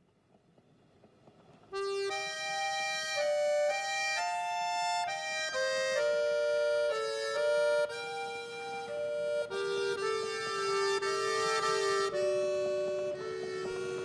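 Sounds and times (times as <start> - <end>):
instrumental music: 1.3 - 14.0.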